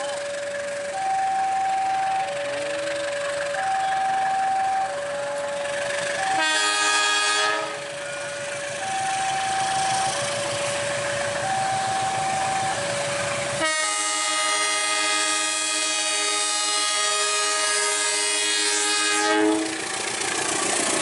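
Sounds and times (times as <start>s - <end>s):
two-tone warning alarm: 0.0s - 19.2s
locomotive air horn: 6.1s - 8.0s, 11.4s - 19.9s.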